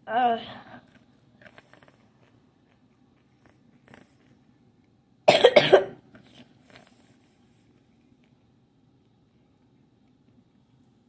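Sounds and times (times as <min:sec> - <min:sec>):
person coughing hard: 0:05.3 - 0:06.0.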